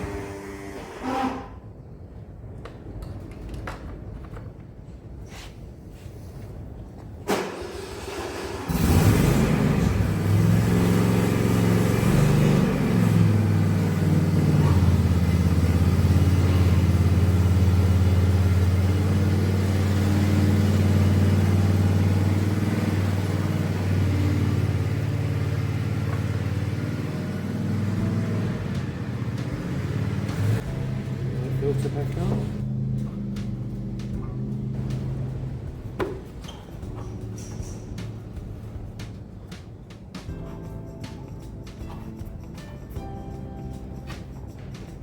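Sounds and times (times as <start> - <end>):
ride-on mower engine running: 7.4 - 36.4.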